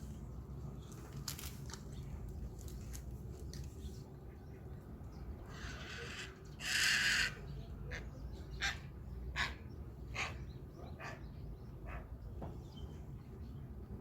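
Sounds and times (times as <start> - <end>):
heron rasping croak: 5.5 - 7.4.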